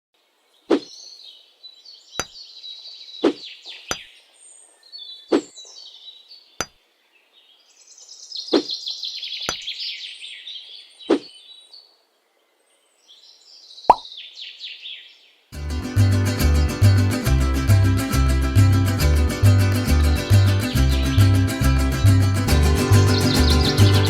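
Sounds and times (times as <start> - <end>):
birds chirping and twittering: 0.4 - 15.4, 20.0 - 24.0.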